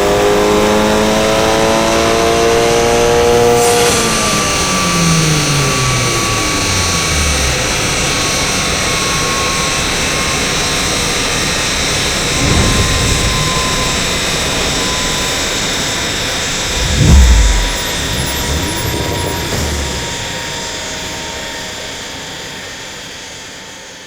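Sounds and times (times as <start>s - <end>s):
cooling blowers rushing: 16.5s - 20.9s
low rumble: 16.6s - 20.6s
rollers spinning down whine: 16.6s - 20.8s.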